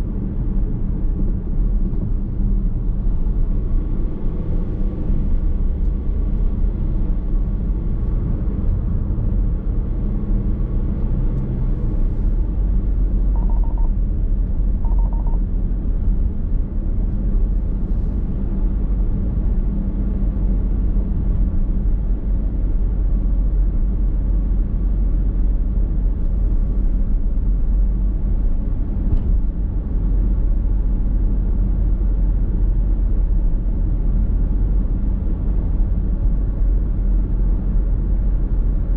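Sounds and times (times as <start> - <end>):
road and tyre rumble in car: 0.0 - 38.9
short beeps: 13.3 - 14.0, 14.8 - 15.4.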